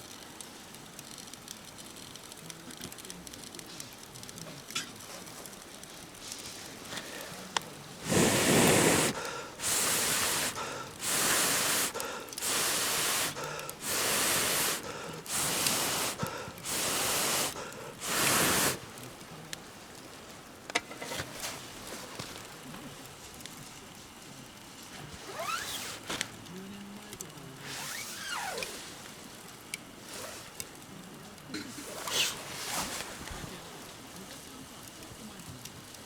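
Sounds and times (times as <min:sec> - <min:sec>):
campfire crackling: 0:00.0 - 0:36.0
puffs of rushing air: 0:08.0 - 0:19.4.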